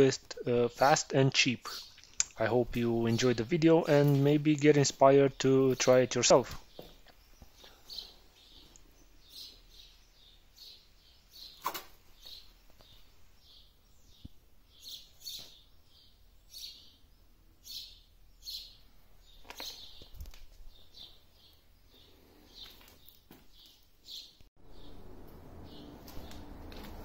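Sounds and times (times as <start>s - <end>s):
small birds chirping: 0.0s - 27.0s
sharp clicks: 2.0s - 2.4s.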